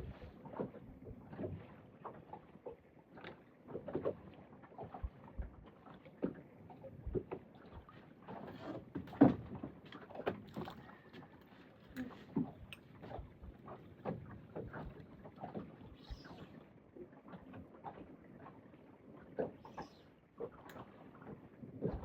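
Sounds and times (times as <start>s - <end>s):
water lapping against boat hull: 0.0s - 22.0s
knocks and taps on boat: 3.2s - 11.3s, 12.0s - 15.8s, 21.2s - 22.0s.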